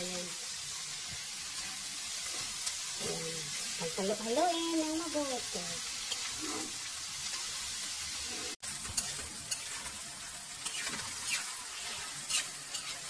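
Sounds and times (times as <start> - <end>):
food sizzling in a wok: 0.0 - 13.0
spatula scraping pan: 8.2 - 13.0.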